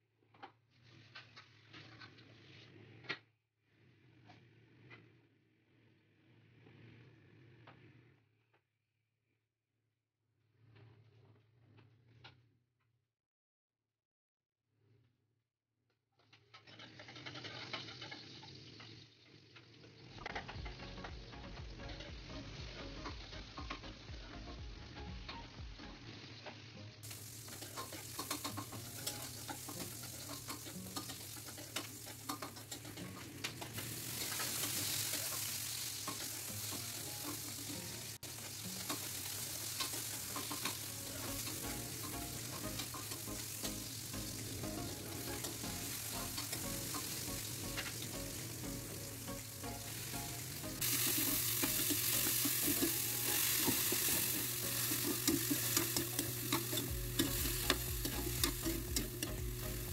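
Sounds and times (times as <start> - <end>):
spatula scraping a wok: 0.7 - 8.1, 26.5 - 48.4, 49.0 - 59.9
food sizzling in a wok: 16.7 - 59.9.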